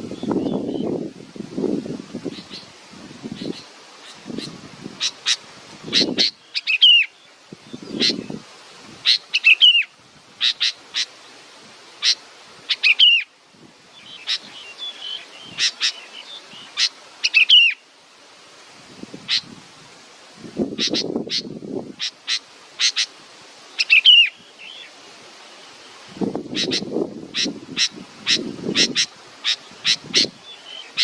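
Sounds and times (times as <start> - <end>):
young bird chirping: 26.5 - 31.0.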